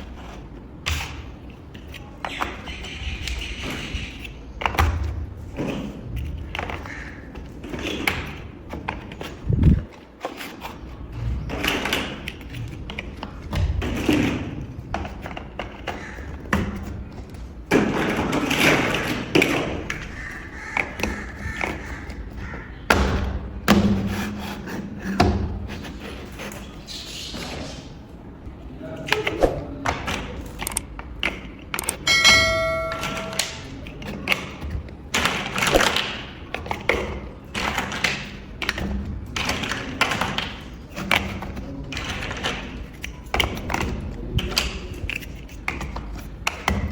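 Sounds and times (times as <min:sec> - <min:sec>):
plastic bricks clicking together: 0:30.4 - 0:32.1
short ringing ping: 0:32.1 - 0:33.7.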